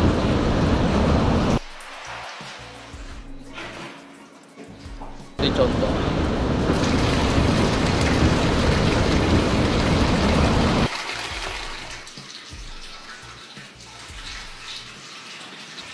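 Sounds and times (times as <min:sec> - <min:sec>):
water pouring heavily: 0:05.4 - 0:15.9.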